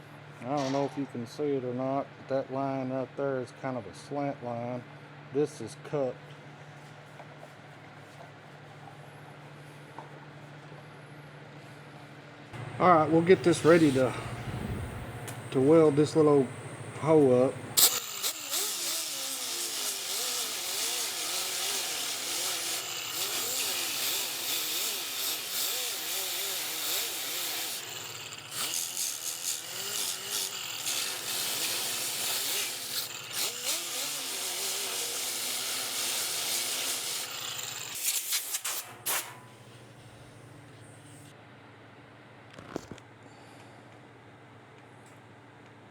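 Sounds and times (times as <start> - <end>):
welder crackling: 12.6 - 39.4.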